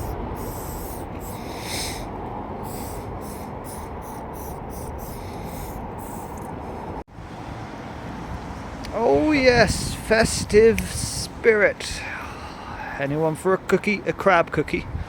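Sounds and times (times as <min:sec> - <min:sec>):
spray paint can hissing: 0:00.0 - 0:06.6.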